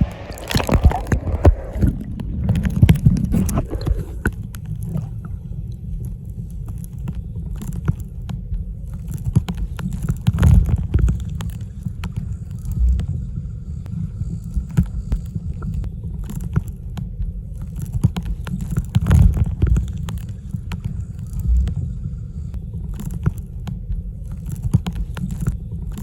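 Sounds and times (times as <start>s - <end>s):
underwater churning rumble: 0.0s - 6.6s, 9.6s - 15.9s, 18.7s - 22.6s.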